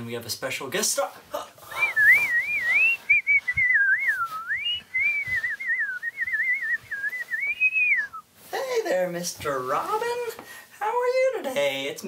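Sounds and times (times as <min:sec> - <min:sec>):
person whistling bird-like song: 0:01.7 - 0:08.2.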